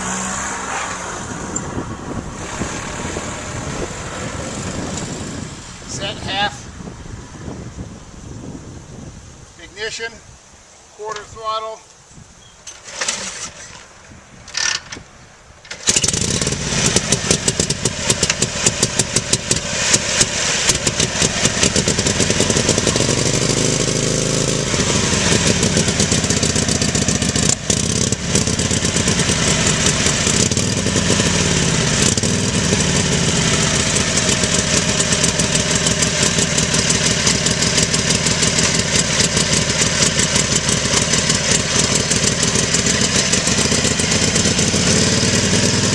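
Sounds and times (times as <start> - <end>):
motorcycle engine starting and idling: 1.5 - 6.6, 12.6 - 45.9.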